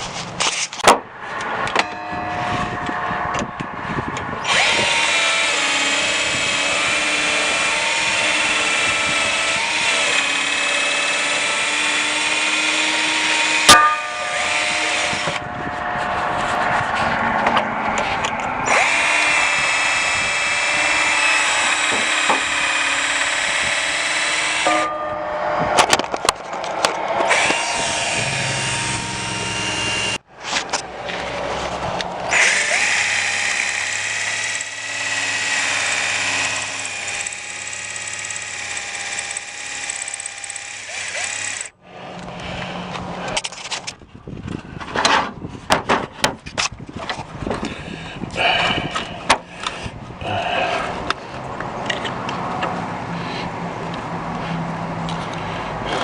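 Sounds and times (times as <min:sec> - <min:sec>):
power drill running: 0:04.4 - 0:13.7, 0:14.4 - 0:15.4, 0:18.6 - 0:24.7, 0:27.3 - 0:30.2, 0:32.3 - 0:41.8.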